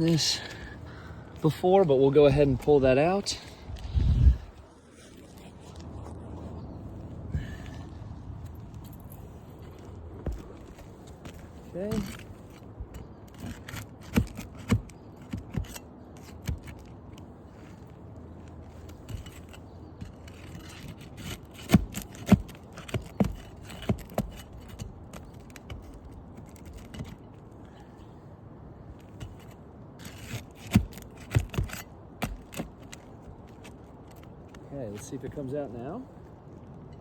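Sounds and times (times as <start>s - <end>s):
scraping on roof shingles: 9.5s - 28.0s.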